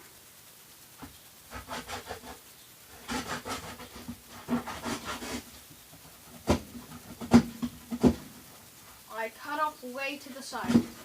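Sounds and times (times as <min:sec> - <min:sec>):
plastic container being cut: 0:03.0 - 0:05.5.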